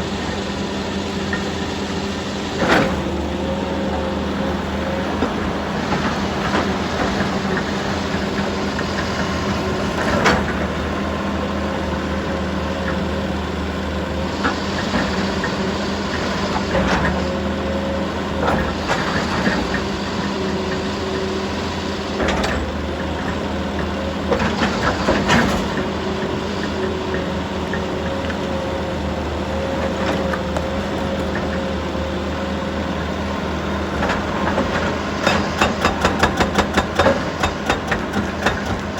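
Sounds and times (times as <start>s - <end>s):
diesel engine running: 0.0s - 38.9s
sharp knocks and clanks: 34.1s - 38.9s.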